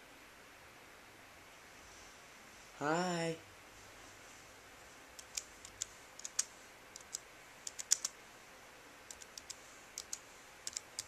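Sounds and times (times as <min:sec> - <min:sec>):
keyboard typing: 0:05.2 - 0:08.2, 0:09.1 - 0:11.0.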